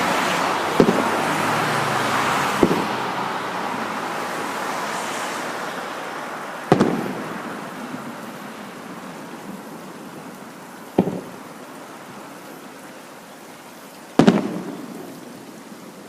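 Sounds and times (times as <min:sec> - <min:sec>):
firework hiss: 0:00.0 - 0:11.5, 0:14.2 - 0:15.8
firework shells bursting: 0:00.8 - 0:01.2, 0:02.6 - 0:03.0, 0:06.7 - 0:07.3, 0:11.0 - 0:11.4, 0:14.2 - 0:15.1.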